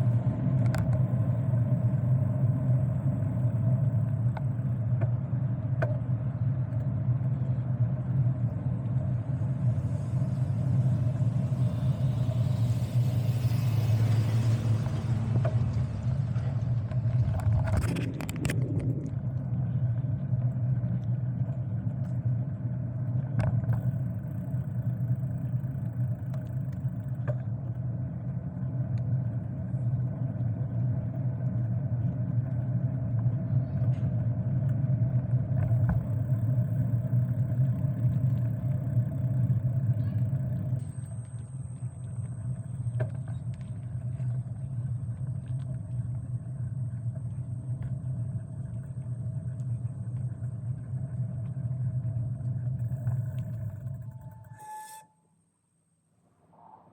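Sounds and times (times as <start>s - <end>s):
thin high whine: 8.4s - 20.0s, 35.6s - 56.9s
wind and road noise: 8.8s - 19.8s.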